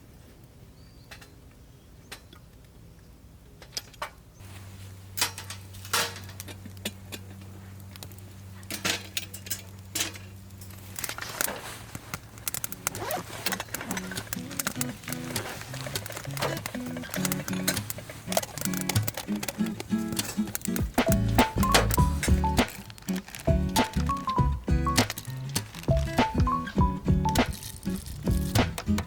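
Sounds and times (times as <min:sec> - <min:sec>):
metal clinks and clatters: 0:12.2 - 0:29.0.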